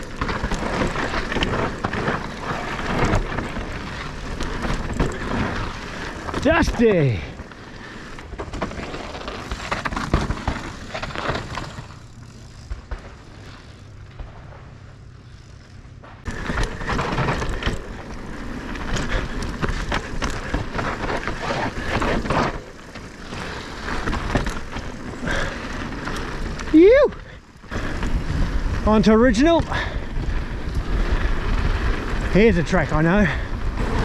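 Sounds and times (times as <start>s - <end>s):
bike rattling over bumps: 0.0s - 34.0s
bike tyres roaring on dirt: 0.0s - 34.0s.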